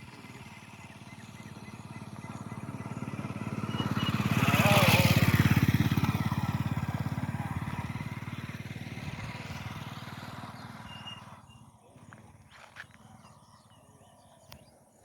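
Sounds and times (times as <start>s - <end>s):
vehicle engine passing by: 0.0s - 12.2s.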